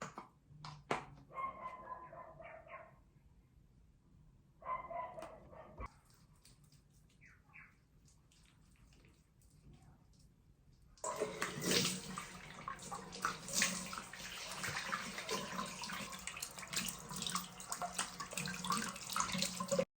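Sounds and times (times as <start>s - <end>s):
water running and splashing: 11.0s - 19.9s.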